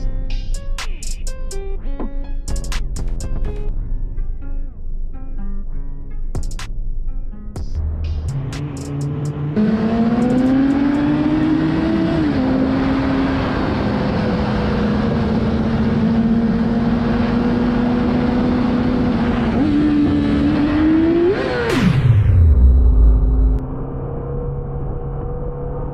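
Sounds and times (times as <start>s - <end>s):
motorcycle engine revving: 7.8s - 25.2s.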